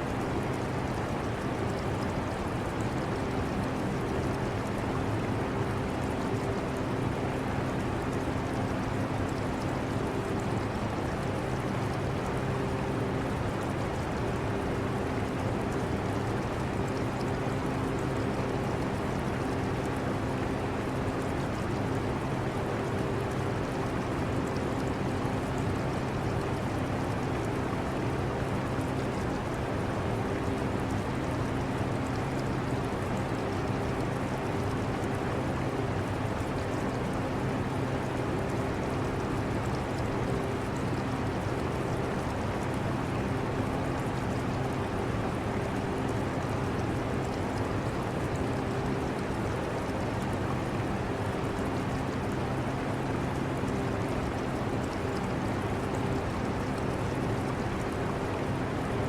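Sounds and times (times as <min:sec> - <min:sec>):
water trickling in aquarium: 0:00.1 - 0:59.0.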